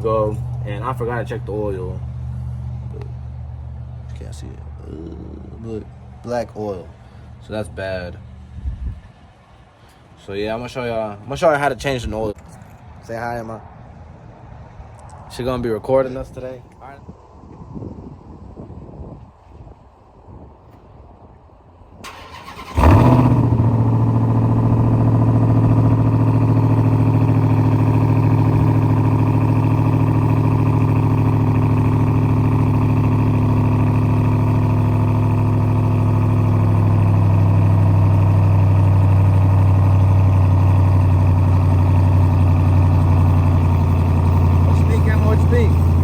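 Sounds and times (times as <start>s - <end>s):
car engine starting and idling: 22.0s - 46.0s.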